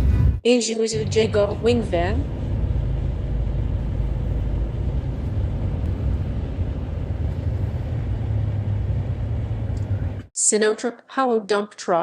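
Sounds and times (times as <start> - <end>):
truck engine rumbling: 1.0 - 10.3
tyre and road noise: 1.0 - 10.3.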